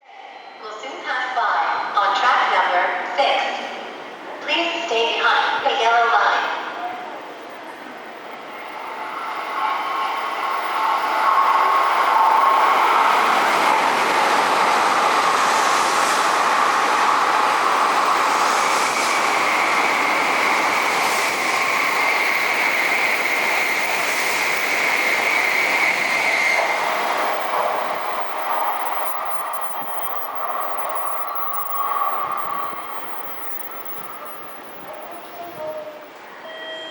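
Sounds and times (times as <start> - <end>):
train passing with rushing wheels: 6.5 - 36.5
high whine: 18.2 - 35.9.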